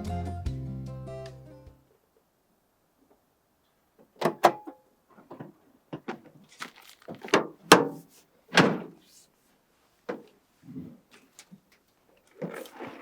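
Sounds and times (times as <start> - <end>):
scraping thud: 6.6 - 9.0.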